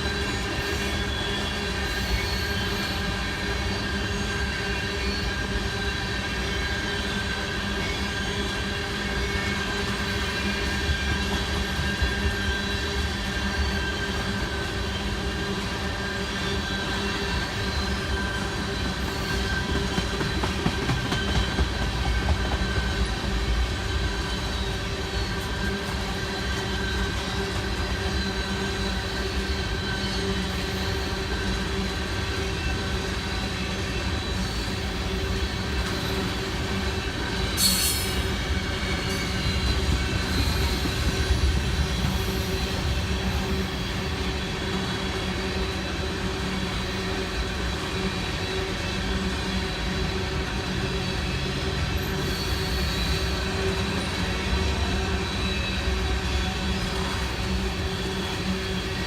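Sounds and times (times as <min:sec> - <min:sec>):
high-pitched wheel squeal: 0:00.0 - 0:46.0, 0:46.7 - 0:59.0
train cars rumbling: 0:00.0 - 0:59.0.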